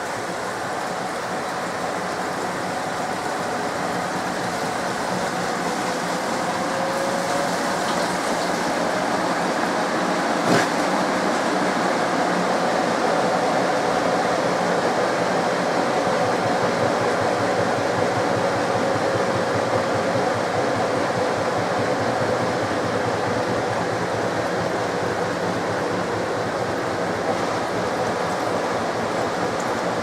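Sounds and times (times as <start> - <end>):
washing machine spinning: 0.0 - 30.0.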